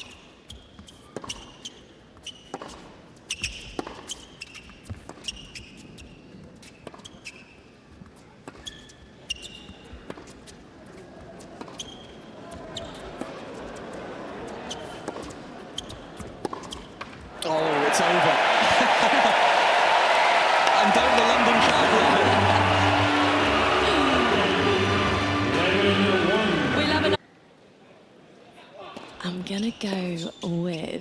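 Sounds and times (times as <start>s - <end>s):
shoe squeaks: 0.0s - 10.6s, 11.4s - 13.2s, 14.5s - 17.0s, 29.4s - 31.0s
crowd noise: 12.2s - 27.3s.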